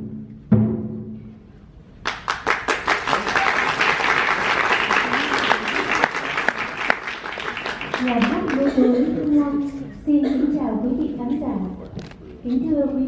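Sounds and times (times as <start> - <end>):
audience applause: 2.1 - 9.0.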